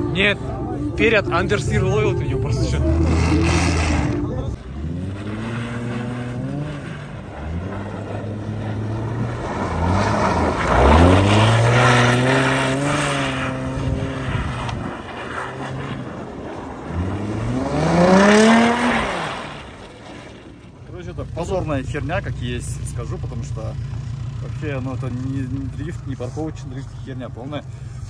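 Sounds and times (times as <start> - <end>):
car engine revving: 0.0 - 28.0
wheels spinning in wet snow: 4.8 - 23.6.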